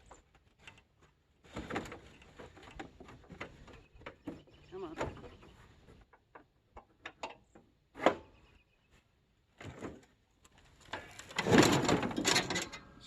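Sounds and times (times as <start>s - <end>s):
knocks and clunks: 11.3s - 12.9s.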